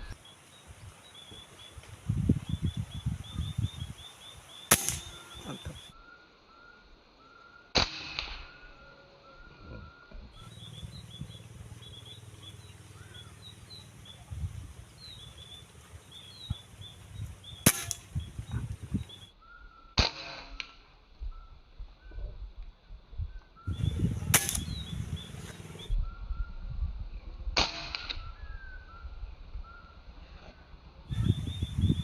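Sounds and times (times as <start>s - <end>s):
small birds chirping: 0.0s - 7.7s, 9.3s - 20.0s, 23.3s - 26.6s, 31.1s - 32.0s
gunshots: 4.7s - 5.7s, 17.6s - 18.1s, 24.2s - 24.8s.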